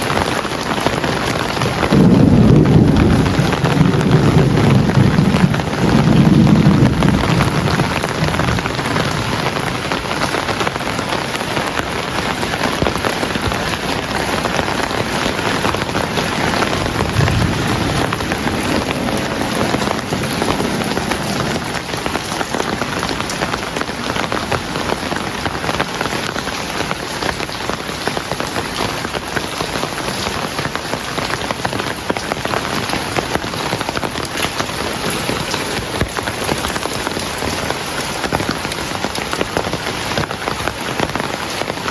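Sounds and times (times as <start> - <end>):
heavy rain falling: 0.0 - 41.9
low rumble: 16.8 - 22.0.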